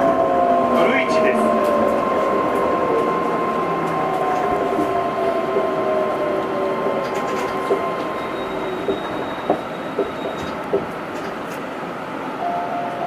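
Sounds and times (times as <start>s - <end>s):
train rolling rumble: 0.0s - 13.0s
train motor whine: 1.5s - 11.7s
sharp knocks: 8.8s - 11.4s.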